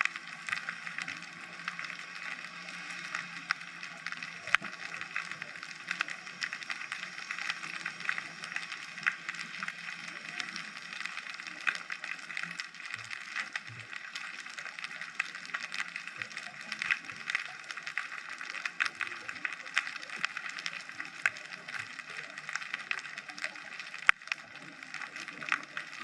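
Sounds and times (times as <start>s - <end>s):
underwater crackle of tiny clicks: 0.0s - 26.0s.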